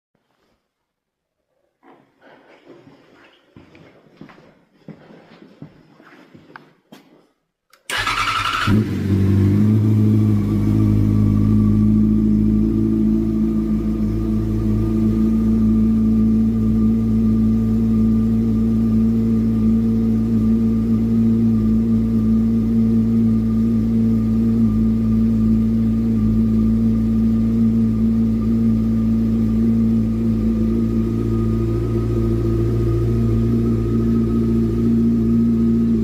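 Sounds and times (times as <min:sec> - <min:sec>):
motorcycle engine running steadily: 0:08.6 - 0:36.0.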